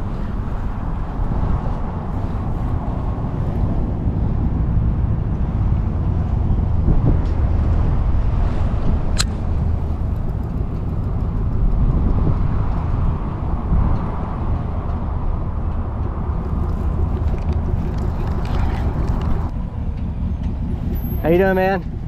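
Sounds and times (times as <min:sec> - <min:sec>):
low rumbling outdoor noise: 0:00.0 - 0:22.0
sharp click: 0:09.2 - 0:09.4.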